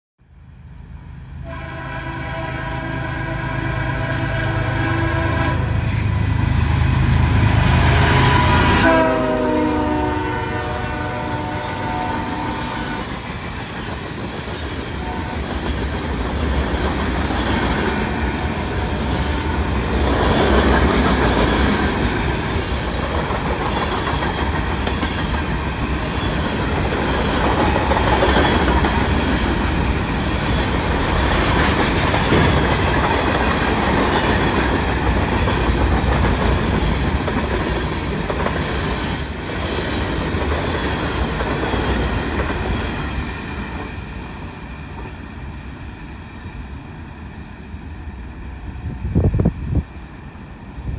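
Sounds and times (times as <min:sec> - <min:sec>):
locomotive air horn: 0:01.4 - 0:06.1, 0:07.9 - 0:13.1
train wheels clattering: 0:12.2 - 0:44.1
wheel squeal: 0:13.8 - 0:15.0, 0:39.0 - 0:39.5.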